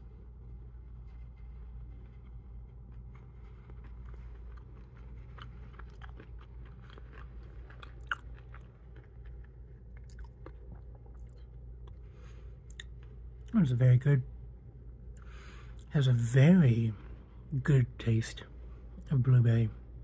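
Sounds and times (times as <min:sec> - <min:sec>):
crunchy chewing: 0:00.6 - 0:13.6.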